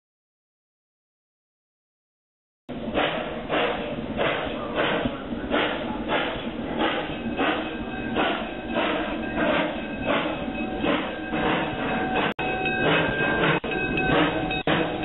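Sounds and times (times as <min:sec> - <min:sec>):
steam locomotive chuffing: 0:02.7 - 0:15.0.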